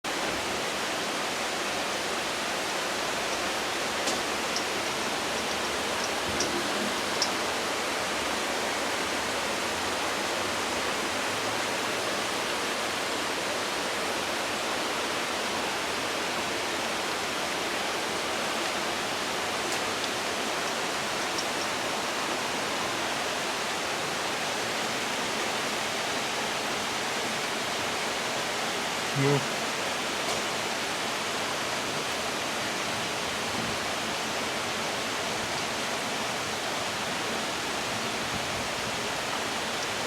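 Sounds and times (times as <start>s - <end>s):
steady hiss: 0.2s - 10.3s
faint ticks: 3.2s - 7.5s, 19.7s - 21.8s.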